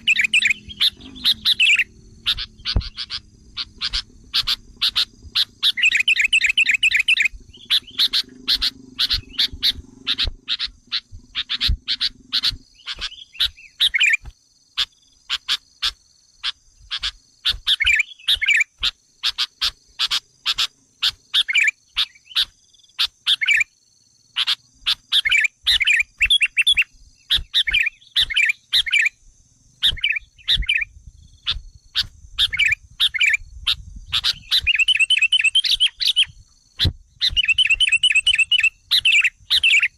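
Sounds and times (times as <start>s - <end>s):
low hum: 0.0s - 13.7s
bird chips and chattering song: 0.0s - 23.7s, 24.3s - 29.2s, 29.8s - 39.9s.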